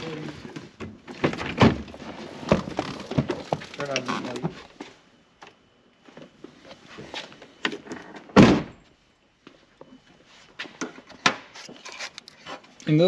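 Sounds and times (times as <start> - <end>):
loud thump: 8.4 - 8.8.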